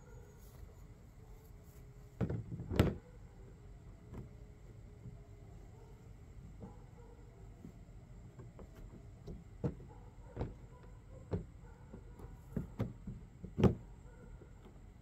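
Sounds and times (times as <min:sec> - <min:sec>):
plastic panels knocking and clicking: 0:11.3 - 0:13.8.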